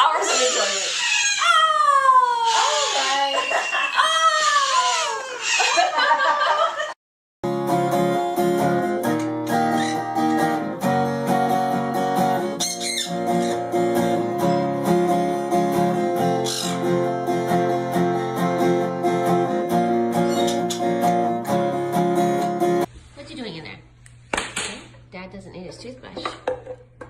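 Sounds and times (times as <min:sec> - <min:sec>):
acoustic guitar music: 0:07.4 - 0:22.9.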